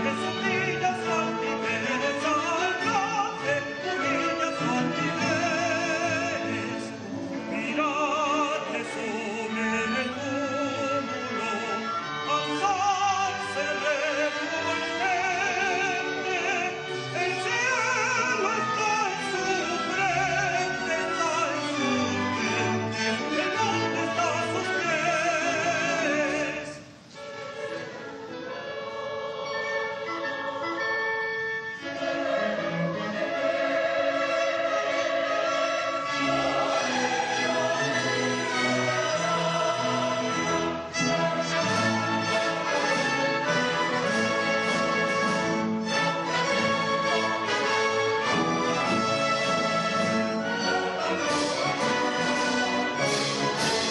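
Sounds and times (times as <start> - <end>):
operatic singing: 0.0 - 53.9
symphony orchestra: 0.0 - 53.9.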